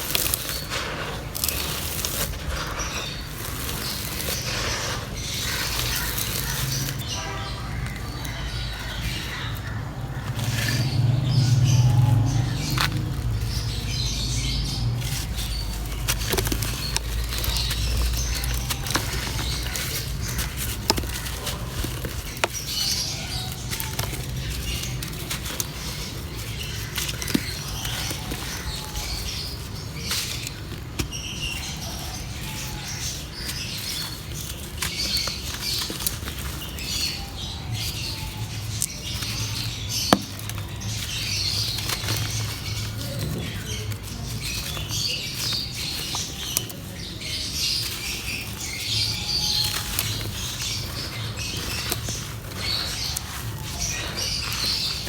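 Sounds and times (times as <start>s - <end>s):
dry material crackling in a pot: 0.0s - 55.0s
low rumble: 8.6s - 16.1s.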